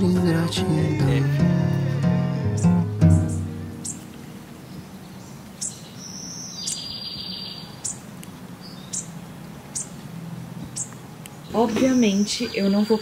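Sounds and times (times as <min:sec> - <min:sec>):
buzzy bird trill: 0:02.4 - 0:04.1
bird chirping: 0:02.4 - 0:13.0.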